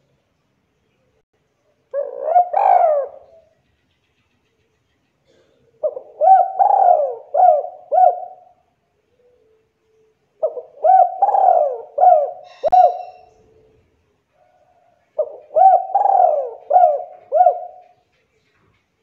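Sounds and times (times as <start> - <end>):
dove cooing: 1.9 - 3.5, 5.3 - 8.6, 10.4 - 13.9, 14.5 - 18.1.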